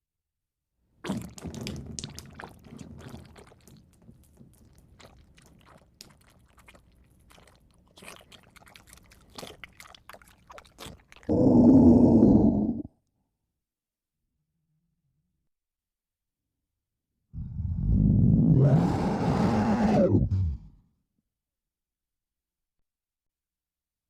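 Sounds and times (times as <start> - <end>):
monster growl: 11.3 - 12.9, 17.4 - 20.8.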